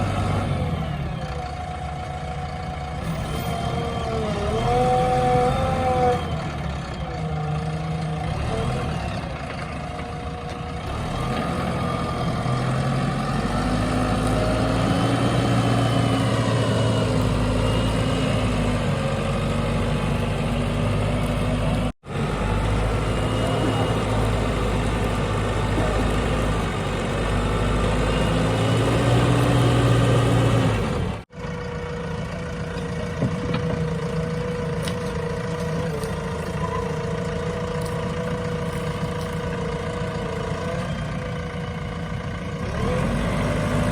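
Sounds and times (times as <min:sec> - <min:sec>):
diesel engines running: 0:00.0 - 0:43.9.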